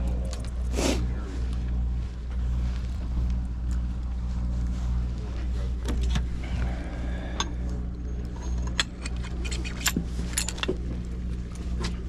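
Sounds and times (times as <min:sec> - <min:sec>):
boat engine idling: 0:00.0 - 0:12.0
metallic clinking and rattling: 0:08.2 - 0:11.1.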